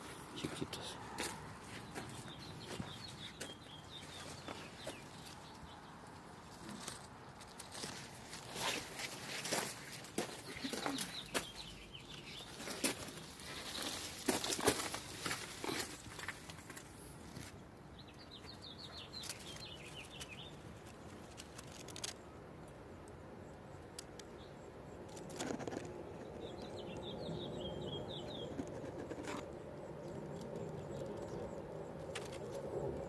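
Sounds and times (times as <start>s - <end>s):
bird calling: 10.3s - 13.2s.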